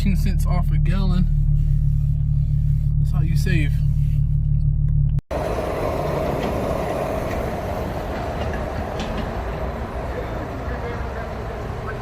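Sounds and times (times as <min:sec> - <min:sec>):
car engine droning: 0:00.0 - 0:12.0
vehicle rushing noise: 0:05.3 - 0:12.0.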